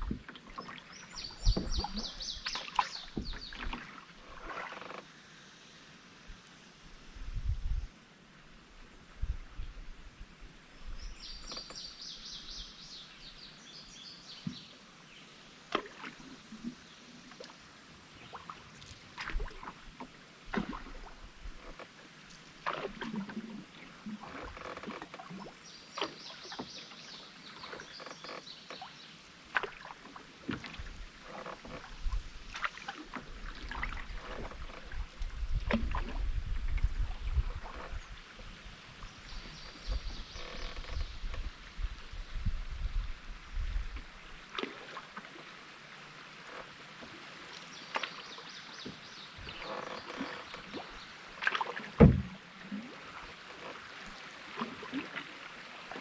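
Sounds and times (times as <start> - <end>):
paddle knocking against canoe: 0.0 - 5.0, 14.4 - 14.7, 19.2 - 26.9, 27.5 - 38.0, 47.8 - 52.5
water splashing: 0.0 - 5.0, 18.2 - 38.1, 46.4 - 56.0.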